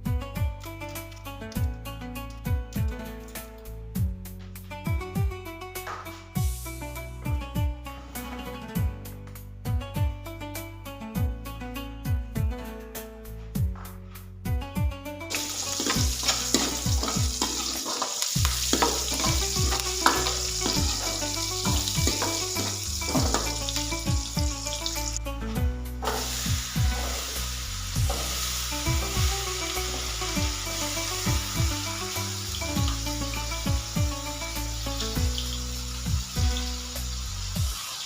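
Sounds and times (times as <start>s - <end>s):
background music: 0.0s - 37.9s
food sizzling in a pan: 15.3s - 25.2s, 26.0s - 38.0s.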